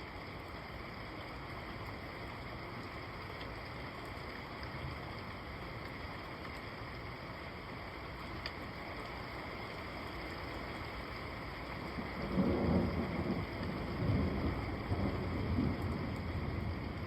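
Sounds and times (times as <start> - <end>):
steady rain hiss: 0.0 - 17.0
rolling thunder rumble: 11.8 - 17.0.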